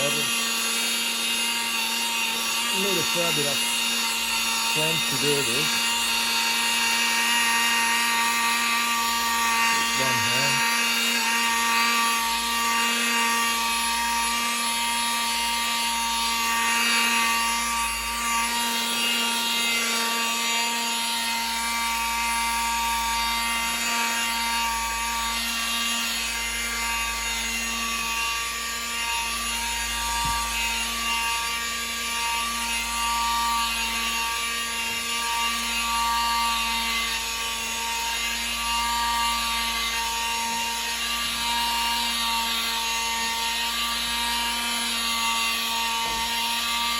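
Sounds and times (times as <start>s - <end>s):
rotary tool polishing glass: 0.0s - 46.9s.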